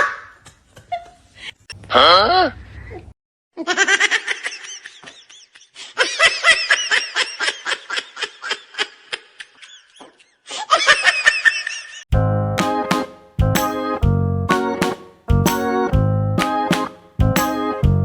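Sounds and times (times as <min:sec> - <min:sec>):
person laughing hard: 0:03.6 - 0:12.0.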